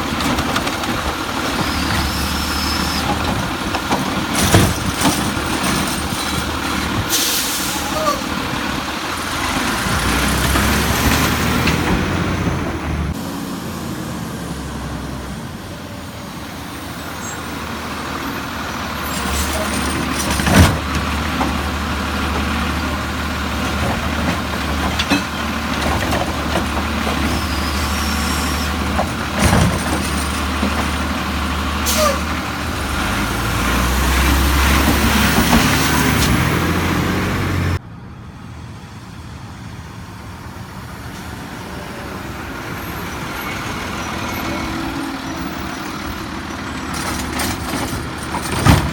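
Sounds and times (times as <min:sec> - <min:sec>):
diesel truck engine running: 0:00.0 - 0:48.9
air brake hiss: 0:07.1 - 0:08.1, 0:31.8 - 0:32.3.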